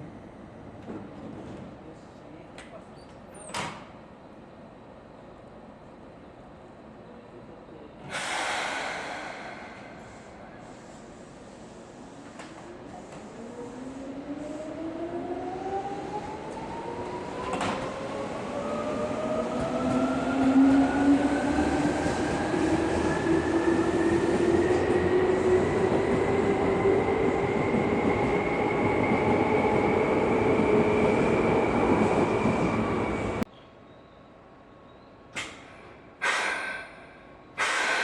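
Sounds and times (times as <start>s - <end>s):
sharp click: 35.4s - 36.6s.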